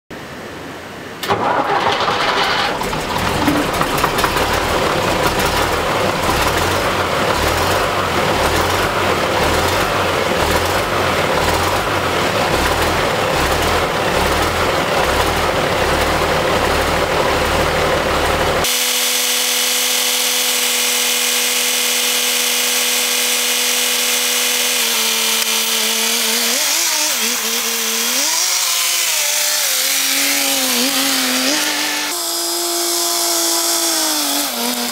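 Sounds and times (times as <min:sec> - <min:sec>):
diesel truck engine idling: 0:01.4 - 0:18.6
steady pitched drone: 0:02.3 - 0:18.7.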